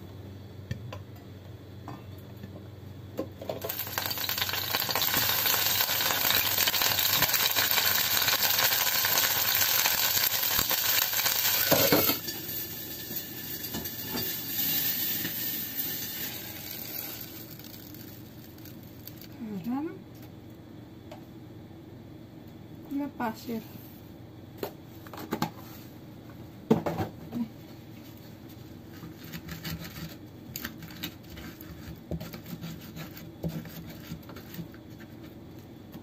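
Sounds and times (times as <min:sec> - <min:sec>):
chillies and tomato sizzling in oil: 0:03.4 - 0:19.6.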